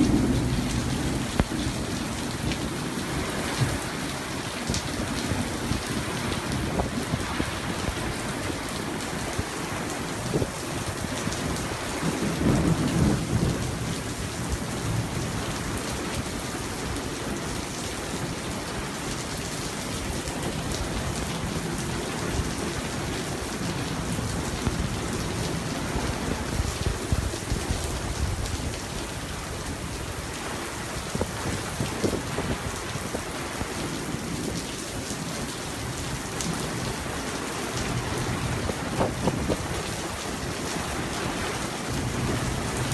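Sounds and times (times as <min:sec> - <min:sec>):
rumble of thunder: 0:00.0 - 0:04.1, 0:11.6 - 0:15.8
steady rain falling: 0:00.0 - 0:42.9.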